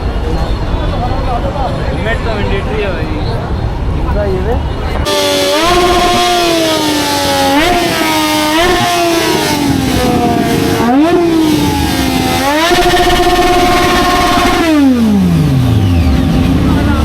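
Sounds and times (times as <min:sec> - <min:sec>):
motorcycle engine revving: 0:05.0 - 0:17.0.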